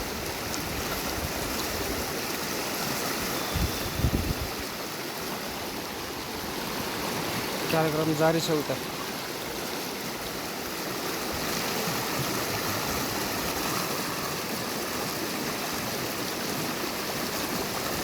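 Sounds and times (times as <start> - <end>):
river flowing over rocks: 0.0 - 18.0.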